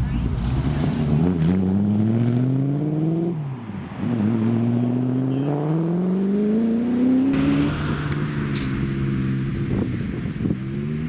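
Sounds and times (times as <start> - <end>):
car engine accelerating: 0.0 - 11.0
engine running at steady pitch: 7.3 - 11.0.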